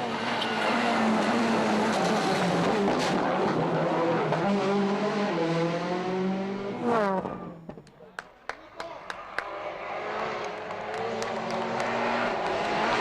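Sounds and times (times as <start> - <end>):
tyre and road noise: 8.8 - 13.0
car engine running hard: 9.4 - 13.0.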